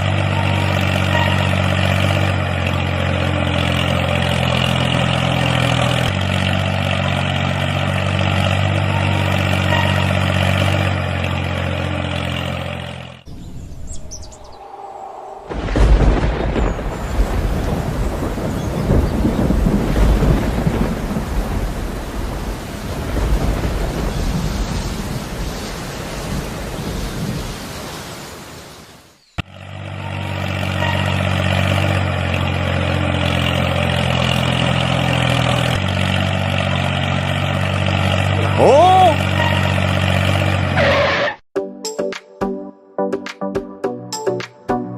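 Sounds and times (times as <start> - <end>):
thunder rumbling: 13.3 - 27.8
short rising whine: 13.9 - 16.4
rain: 15.5 - 40.7.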